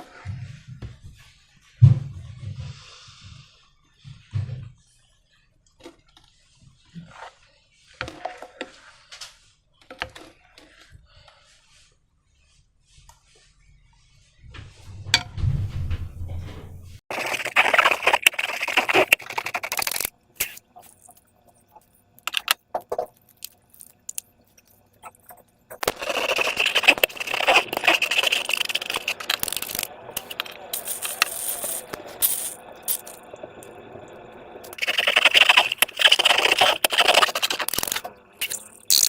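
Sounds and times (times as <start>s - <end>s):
hands squelching slime and balloons: 17.1s - 33.2s, 34.7s - 39.0s.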